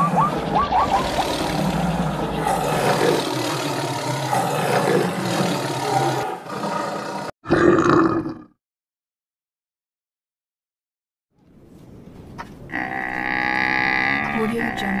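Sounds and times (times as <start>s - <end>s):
dense rumbling din: 0.0s - 4.3s
animal roars: 0.0s - 8.6s, 12.7s - 15.0s.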